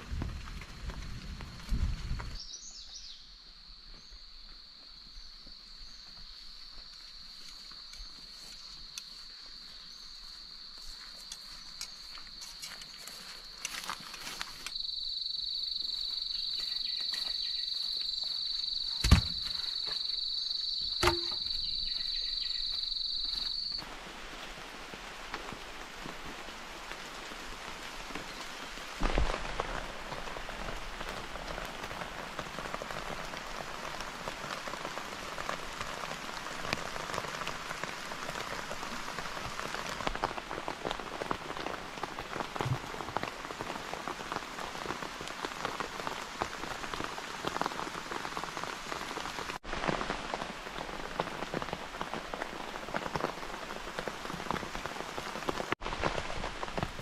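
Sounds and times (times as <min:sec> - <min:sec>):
rain patter in forest: 0:00.0 - 0:57.0
sharp knocks: 0:21.0 - 0:21.5.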